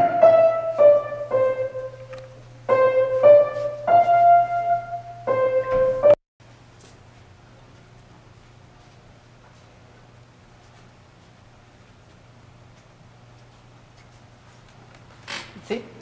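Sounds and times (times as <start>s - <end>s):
keyboard held notes: 0.0s - 6.2s.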